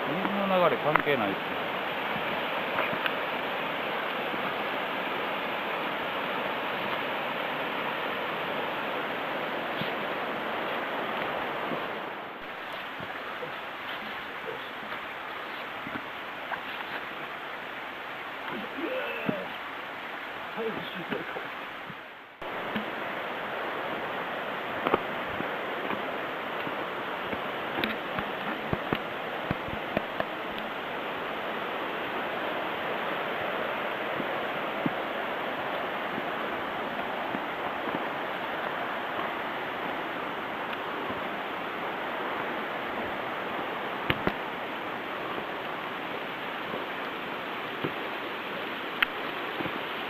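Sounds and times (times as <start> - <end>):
mountain stream rushing: 0.0 - 50.0.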